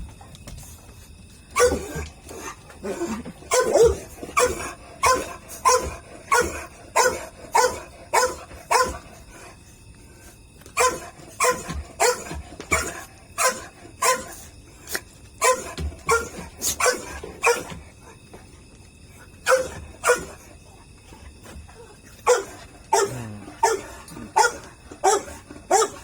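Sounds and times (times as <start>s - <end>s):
small dog barking: 3.5s - 9.0s, 10.8s - 14.3s, 15.4s - 17.7s, 19.5s - 20.3s, 22.3s - 26.0s.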